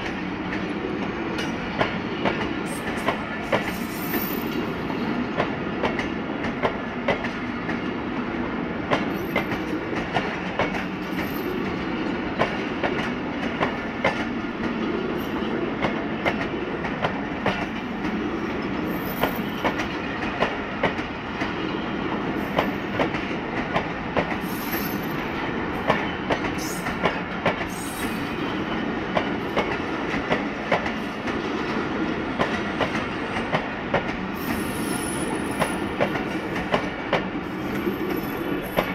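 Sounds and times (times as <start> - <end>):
train coaches rumbling past: 0.0 - 38.9.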